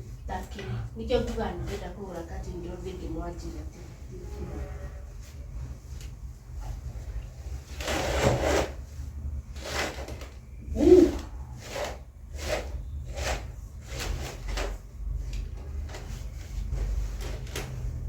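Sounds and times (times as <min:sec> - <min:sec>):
curtain hooks sliding on a rail: 0:07.6 - 0:08.9, 0:09.5 - 0:16.3.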